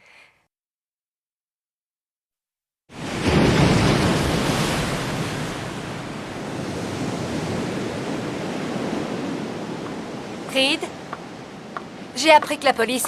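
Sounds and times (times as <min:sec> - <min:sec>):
loud steady rushing noise: 0:09.5 - 0:13.0.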